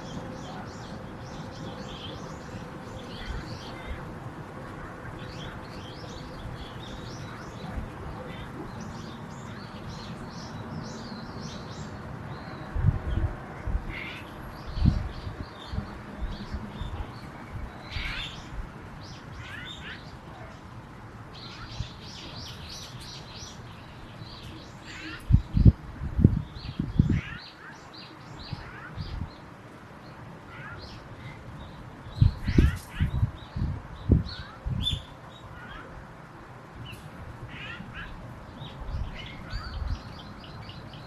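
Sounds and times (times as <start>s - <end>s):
small birds chirping: 0.0s - 36.0s, 36.7s - 41.0s.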